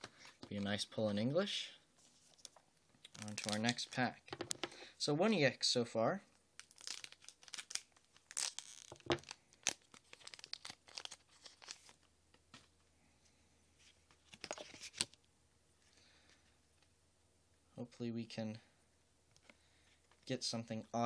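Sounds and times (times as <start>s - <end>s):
foil wrapper ripping and crinkling: 3.1s - 3.8s, 6.6s - 12.0s.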